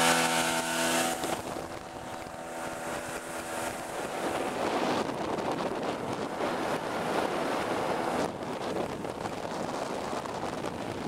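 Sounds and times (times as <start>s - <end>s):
outboard motor: 0.0s - 11.0s
water rushing past hull: 0.0s - 11.0s
wind buffeting microphone: 0.0s - 11.0s.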